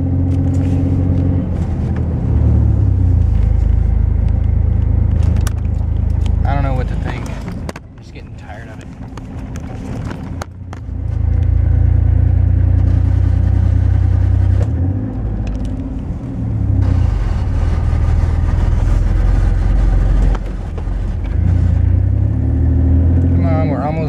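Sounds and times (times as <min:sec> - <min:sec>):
truck engine labouring uphill: 0:08.8 - 0:24.0.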